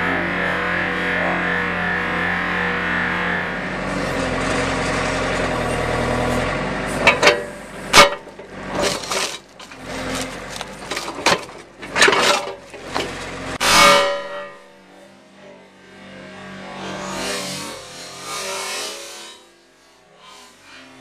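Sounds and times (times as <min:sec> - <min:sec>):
backhoe engine running: 0:00.0 - 0:16.4.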